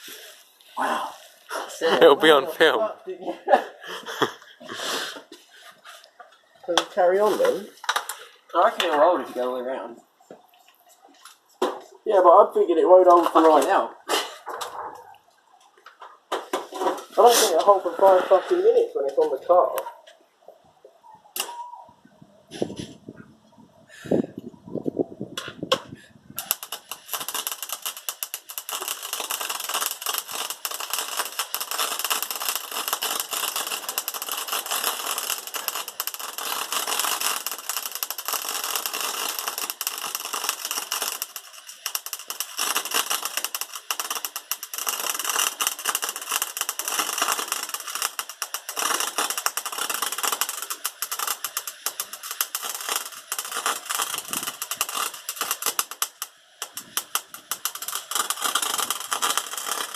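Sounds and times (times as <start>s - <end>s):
welder arc crackling: 26.4s - 59.9s.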